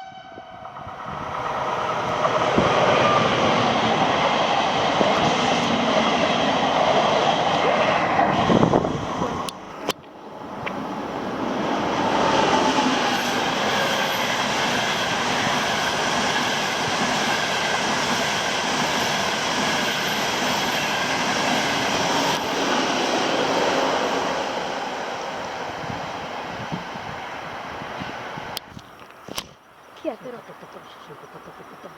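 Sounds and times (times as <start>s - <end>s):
high-speed train passing: 0.0s - 28.7s
high wheel squeal: 12.9s - 17.6s.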